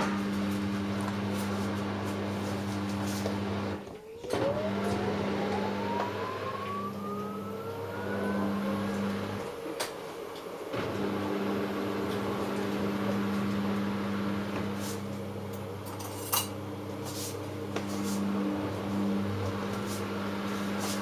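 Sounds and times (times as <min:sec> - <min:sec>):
washing machine motor whine: 0:00.0 - 0:21.0
low hum: 0:04.5 - 0:09.6.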